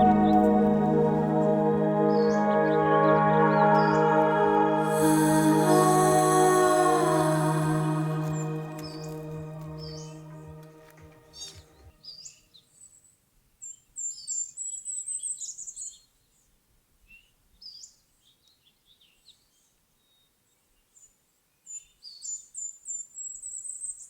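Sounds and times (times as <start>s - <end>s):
music: 0.0s - 11.6s.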